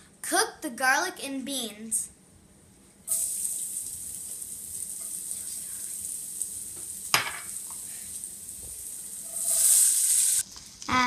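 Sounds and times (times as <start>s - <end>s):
garlic sizzling in a pot: 3.1s - 11.0s.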